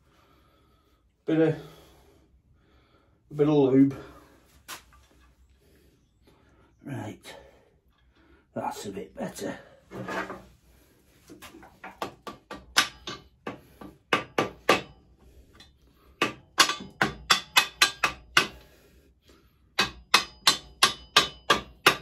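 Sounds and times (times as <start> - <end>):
hammer tapping a bolt: 11.9 - 15.0, 16.2 - 18.6, 19.8 - 22.0.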